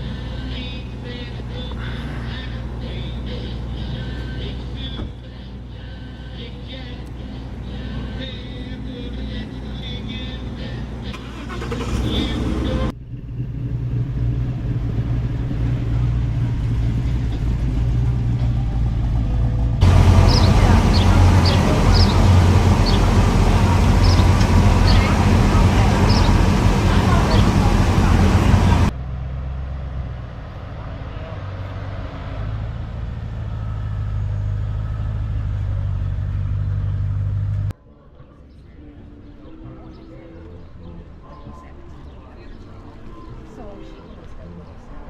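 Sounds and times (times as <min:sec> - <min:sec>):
car engine idling: 0:07.0 - 0:29.1, 0:32.8 - 0:37.7.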